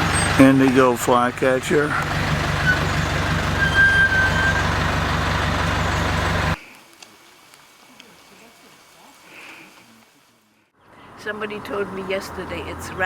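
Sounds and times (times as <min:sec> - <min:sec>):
vehicle engine running: 0:00.0 - 0:06.6
thin whistle: 0:03.6 - 0:04.7.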